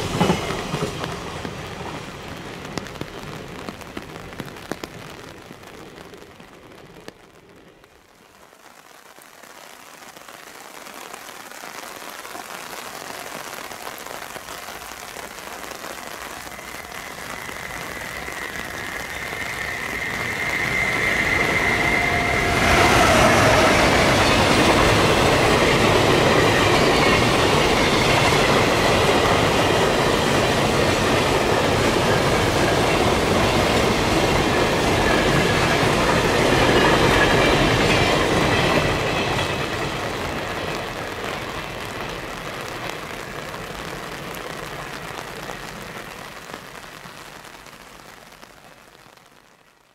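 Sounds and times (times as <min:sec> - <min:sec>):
freight train passing: 0:00.0 - 0:08.3, 0:14.4 - 0:47.1
locomotive high whine: 0:15.8 - 0:43.2.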